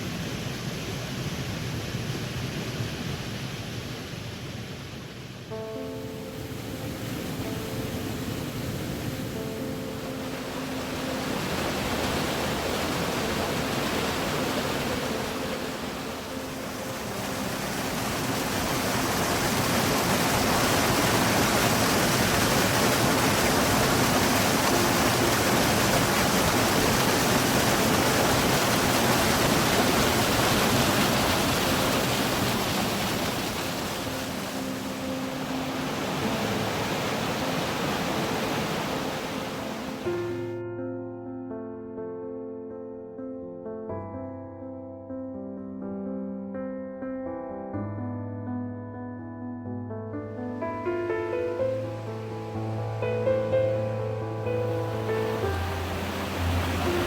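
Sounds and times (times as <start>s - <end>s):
rushing water: 0.0s - 40.5s, 50.4s - 57.0s
faint music: 50.5s - 57.0s.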